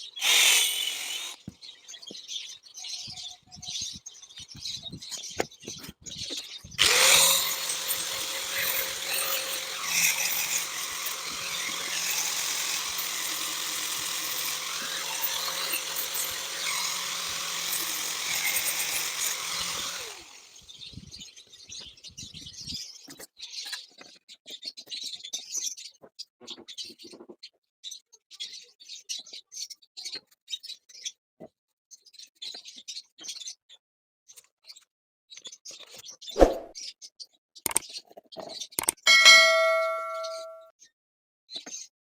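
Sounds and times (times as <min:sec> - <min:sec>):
power tool motor running: 0:00.2 - 0:01.5, 0:06.8 - 0:21.2.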